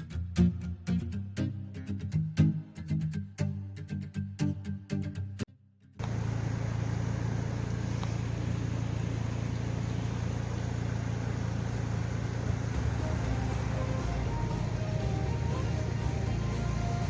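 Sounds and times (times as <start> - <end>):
constant rushing noise: 6.0 - 17.0
vehicle engine humming: 6.0 - 17.0
faint music: 9.2 - 17.0.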